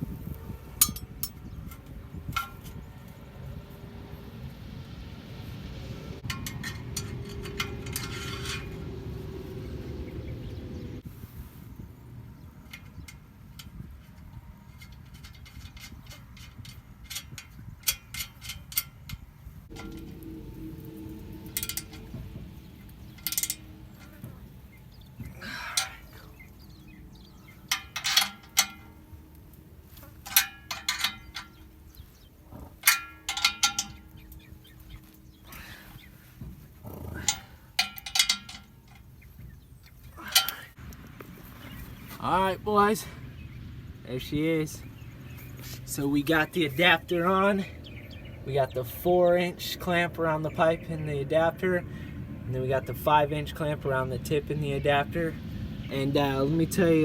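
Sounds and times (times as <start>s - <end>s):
metal clinks with ringing: 0.8s - 1.8s, 19.7s - 32.1s, 32.8s - 36.4s, 37.1s - 39.2s
steady low hum: 18.1s - 57.0s.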